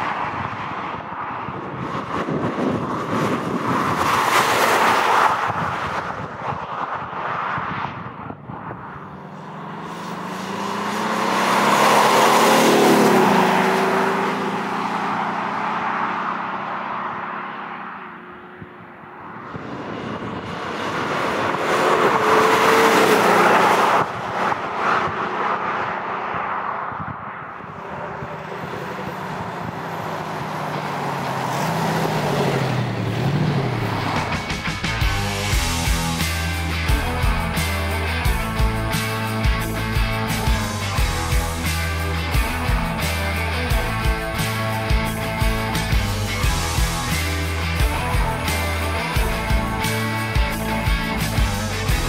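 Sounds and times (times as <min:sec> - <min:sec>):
diesel engine driving past: 0:09.0 - 0:17.5, 0:27.6 - 0:52.0
synthetic engine sound: 0:32.0 - 0:52.0.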